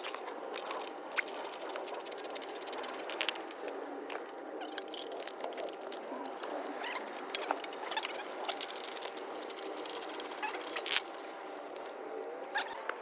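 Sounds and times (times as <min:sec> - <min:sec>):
rapid clicking: 0:00.0 - 0:03.5, 0:04.9 - 0:11.2.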